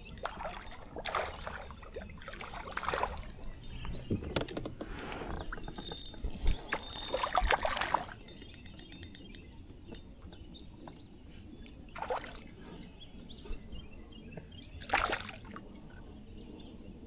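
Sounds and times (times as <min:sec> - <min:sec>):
rapid mechanical clicks: 0:00.0 - 0:02.6, 0:03.2 - 0:09.4
water swish: 0:00.0 - 0:04.1, 0:06.2 - 0:08.3
water splashing: 0:00.0 - 0:04.4, 0:05.0 - 0:08.9.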